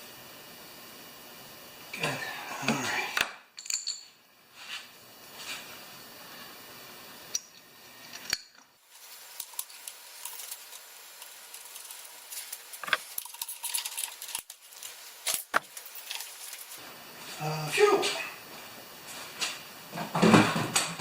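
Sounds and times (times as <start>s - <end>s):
metal parts and tools clinking: 3.6s - 4.1s, 8.8s - 16.8s.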